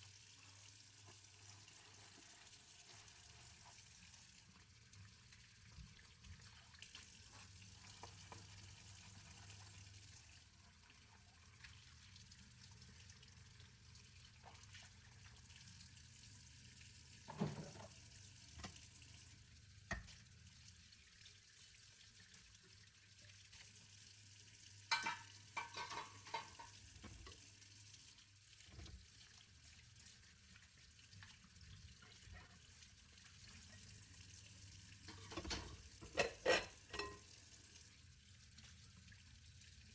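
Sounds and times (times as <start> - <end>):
water hissing at a sink: 0.0 - 39.9
crockery clinking: 24.9 - 26.8, 35.1 - 37.3.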